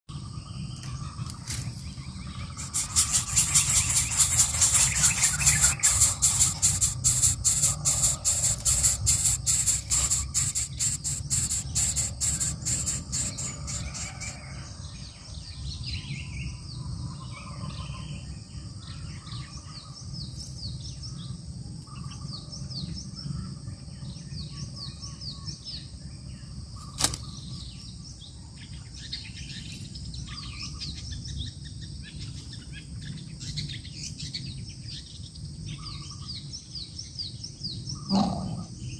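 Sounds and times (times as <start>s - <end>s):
birds chirping: 0.1s - 18.3s, 36.9s - 38.9s
steady high whine: 2.3s - 14.6s
rapid pulsing buzz: 2.4s - 14.5s.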